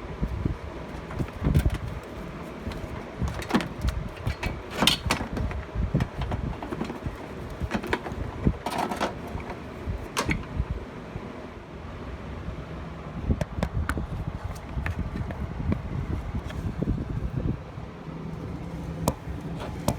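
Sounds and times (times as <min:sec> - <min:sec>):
wind rumble on microphone: 0:00.0 - 0:08.7, 0:09.3 - 0:10.9, 0:13.1 - 0:19.9.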